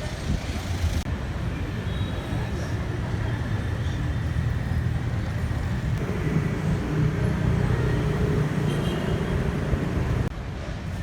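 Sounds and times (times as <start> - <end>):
street traffic: 0.0 - 11.0
car engine rumbling: 4.2 - 10.3.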